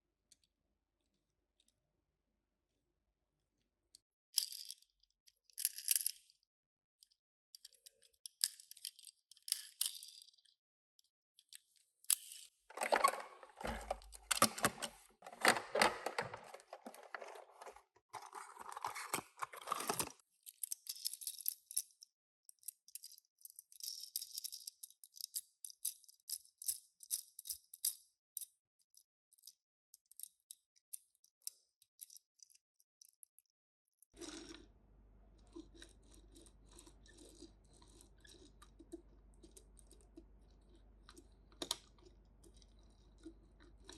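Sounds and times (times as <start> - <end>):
small toy clicking and rattling: 4.4 - 6.4, 7.0 - 10.6, 19.8 - 33.5
cardboard and plastic crinkling: 12.7 - 20.2.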